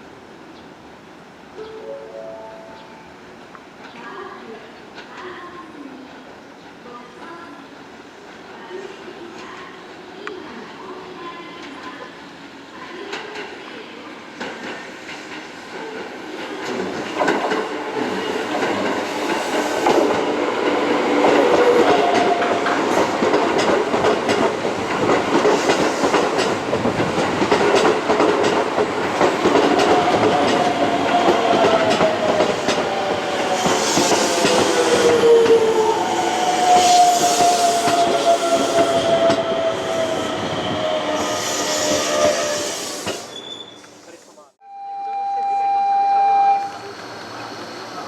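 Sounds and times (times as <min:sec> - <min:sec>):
falling train whine: 0:01.6 - 0:03.7, 0:16.6 - 0:43.4, 0:44.6 - 0:48.0.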